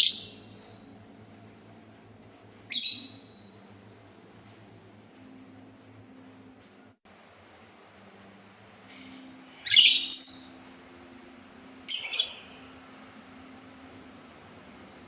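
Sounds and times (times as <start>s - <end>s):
songbird chirping: 0.0s - 0.9s, 2.7s - 3.5s, 8.9s - 14.3s.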